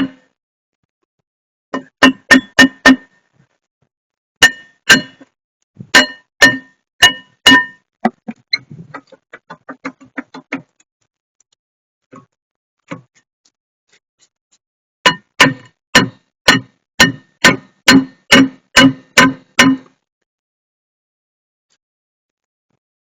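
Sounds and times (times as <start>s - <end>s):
hammer striking metal: 0.0s - 0.3s, 1.8s - 3.2s, 4.4s - 5.3s, 6.0s - 8.2s, 15.1s - 20.0s.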